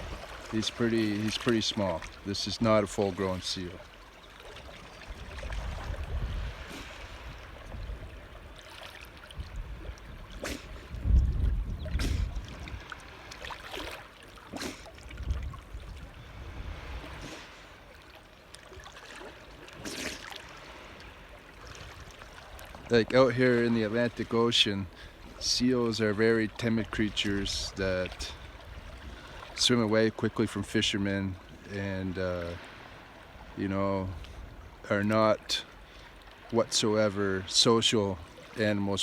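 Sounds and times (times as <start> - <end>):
water lapping and splashing: 0.0 - 39.0
sharp splashes or knocks: 19.0 - 20.6.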